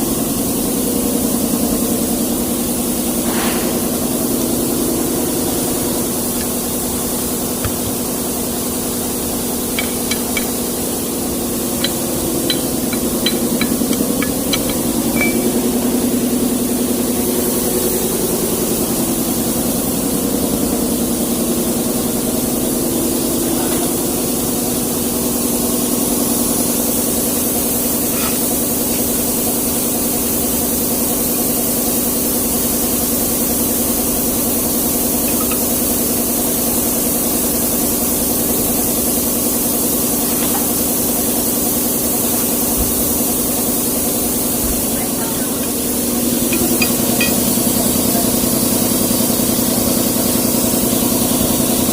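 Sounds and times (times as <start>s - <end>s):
constant hiss: 1.5s - 51.9s
truck diesel engine idling: 3.8s - 51.9s.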